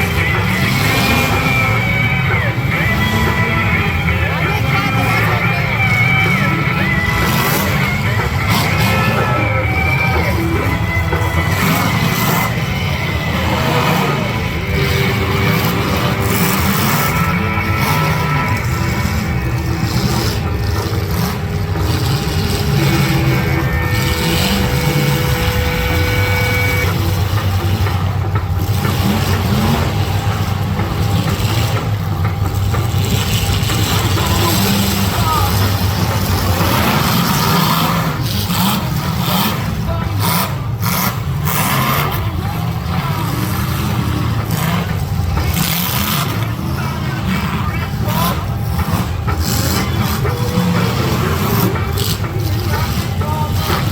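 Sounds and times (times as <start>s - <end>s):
car engines running loudly: 0.0s - 53.9s.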